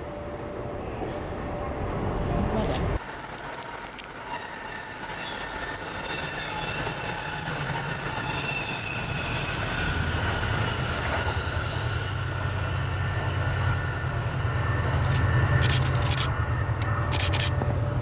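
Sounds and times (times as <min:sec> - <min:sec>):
electric train running on rails: 0:00.0 - 0:18.0
high squealing tones: 0:04.2 - 0:15.9.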